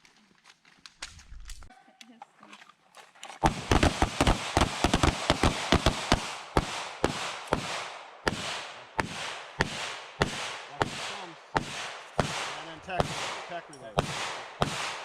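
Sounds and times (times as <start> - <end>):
pistol gunshots with echo: 3.4 - 15.0.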